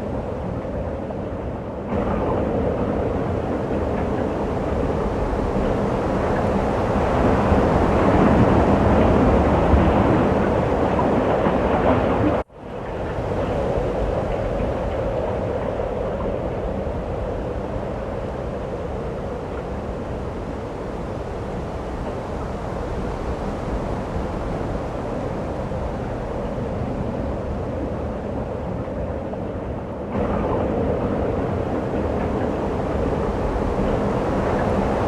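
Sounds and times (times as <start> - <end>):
wind roaring in a snowstorm: 0.0 - 35.0.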